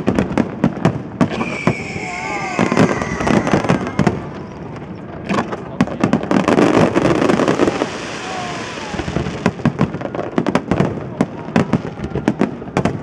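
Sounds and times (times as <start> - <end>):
firework crackling: 0.0 - 13.0
firework shells bursting: 1.1 - 5.6.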